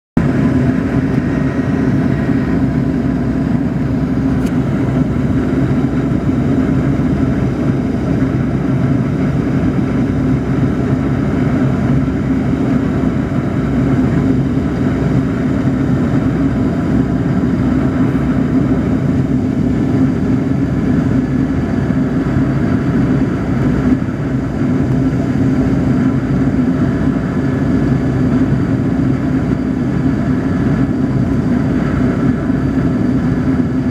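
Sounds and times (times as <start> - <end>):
high engine whines: 0.1 - 33.9
jet engines droning: 0.2 - 33.9.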